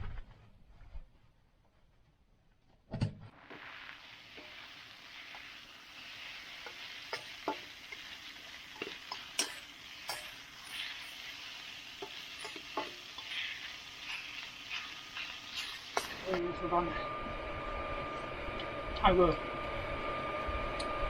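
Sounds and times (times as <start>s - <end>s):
food sizzling in a pan: 3.3s - 16.8s.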